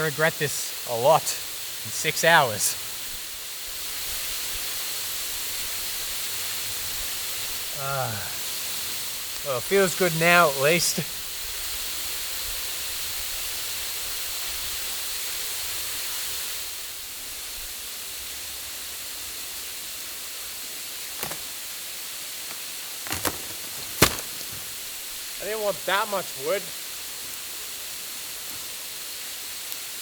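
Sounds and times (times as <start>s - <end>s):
waterfall rushing: 0.0s - 3.4s, 4.4s - 11.2s, 22.5s - 29.2s
short sharp cracks: 21.1s - 21.7s, 22.4s - 24.8s.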